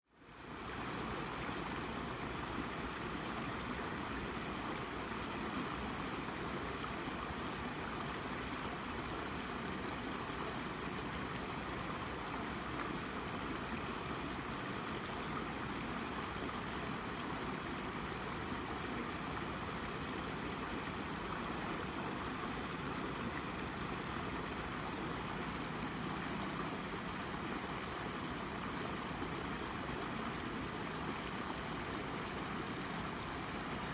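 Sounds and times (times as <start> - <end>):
brook water burbling over rock: 0.3 - 33.9.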